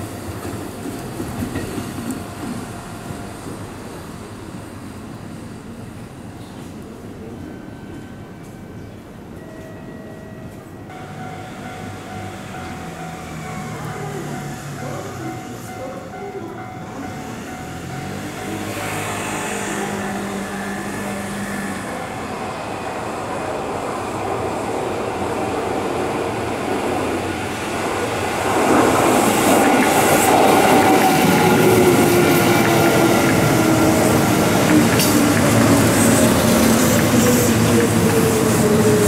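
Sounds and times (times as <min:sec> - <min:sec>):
electric train rumbling past: 0:00.0 - 0:39.0
train whine falling in pitch: 0:10.9 - 0:23.5.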